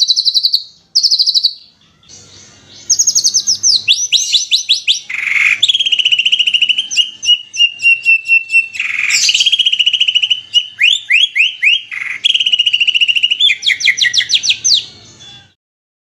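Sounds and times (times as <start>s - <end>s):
songbird trills and whistles: 0.0s - 15.6s.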